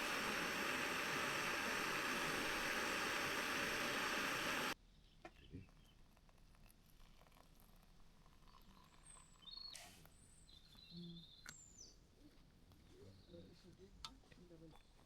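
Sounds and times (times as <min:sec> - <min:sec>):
faint outdoor ambience: 0:00.0 - 0:04.8
steady hiss: 0:00.0 - 0:04.8.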